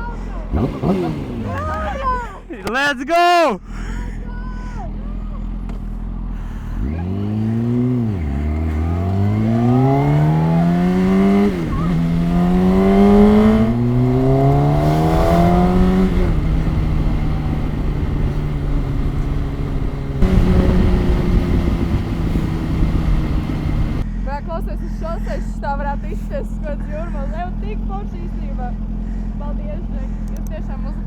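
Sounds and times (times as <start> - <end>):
motorcycle engine accelerating: 0.0 - 2.6, 4.9 - 31.0.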